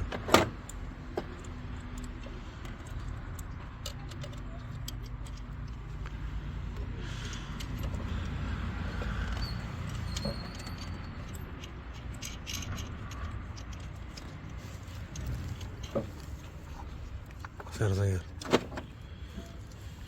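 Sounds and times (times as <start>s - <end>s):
metal tools clinking: 6.8s - 18.1s.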